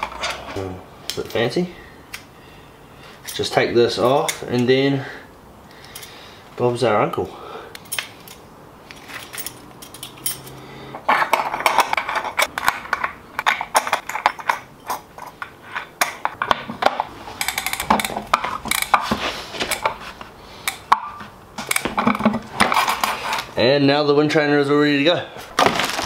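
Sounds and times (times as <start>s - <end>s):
metal parts clinking: 5.8s - 6.2s, 7.8s - 16.4s, 17.4s - 19.9s.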